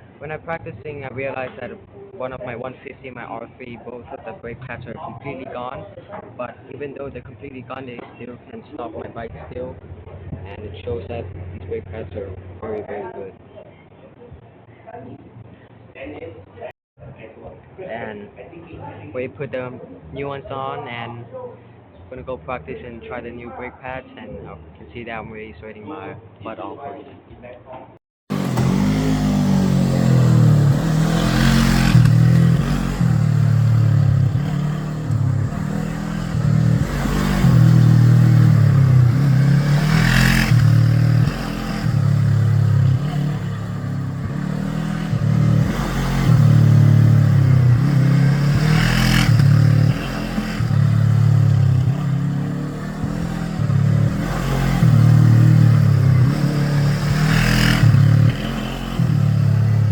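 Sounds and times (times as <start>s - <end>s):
motorcycle engine shifting gears: 28.3s - 59.9s.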